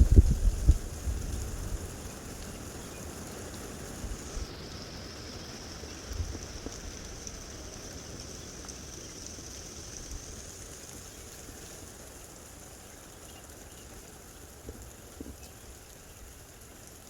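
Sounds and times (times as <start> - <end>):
gusty wind on microphone: 0.0 - 2.1.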